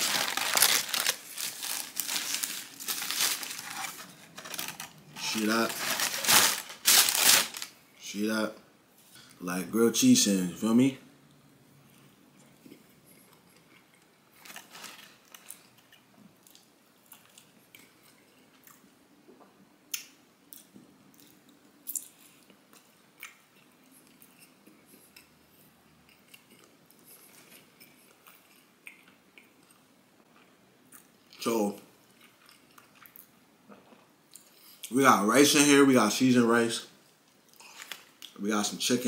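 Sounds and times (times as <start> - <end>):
person chewing food: 11.8 - 14.4, 15.4 - 18.9, 19.9 - 31.1, 32.1 - 34.8.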